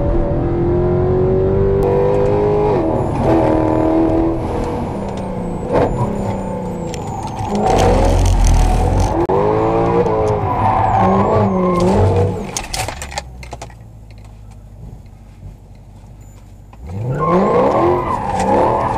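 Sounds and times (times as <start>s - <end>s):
car engine revving hard: 0.0s - 12.5s, 16.8s - 18.9s.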